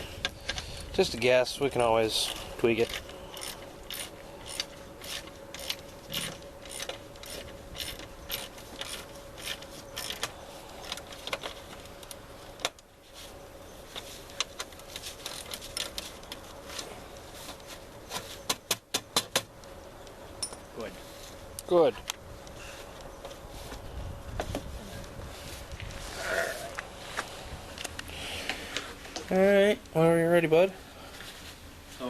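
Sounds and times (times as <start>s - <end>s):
faint steady hum: 0.0s - 32.0s
ratchet wrench clicking: 2.8s - 10.3s.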